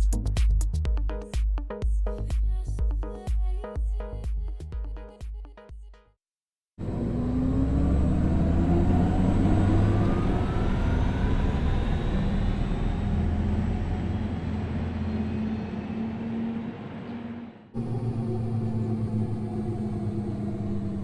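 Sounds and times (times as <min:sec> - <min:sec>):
electric car hum and whine: 0:06.8 - 0:21.0.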